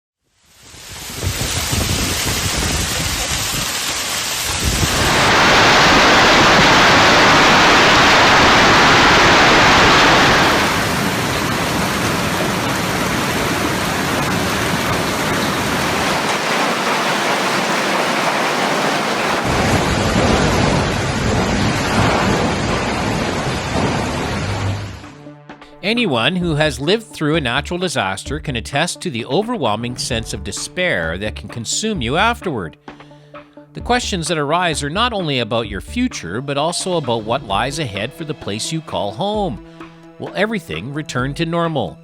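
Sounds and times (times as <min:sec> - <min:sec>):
heavy rain downpour: 0:00.4 - 0:25.2.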